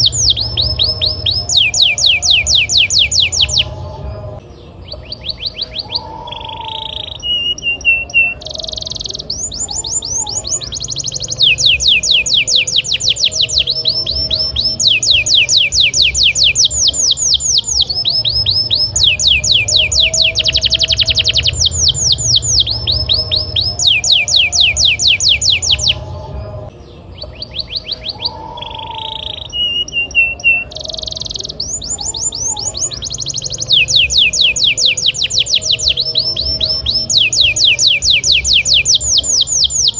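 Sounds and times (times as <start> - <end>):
low steady hum: 0.0 - 5.2, 9.6 - 27.4
canary singing trills: 0.0 - 39.9.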